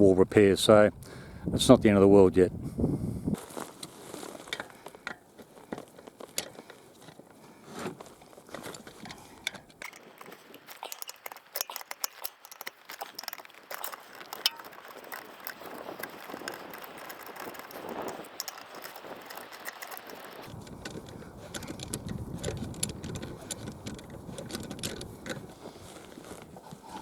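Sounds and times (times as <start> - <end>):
light clicks and crackles: 3.4 - 27.0.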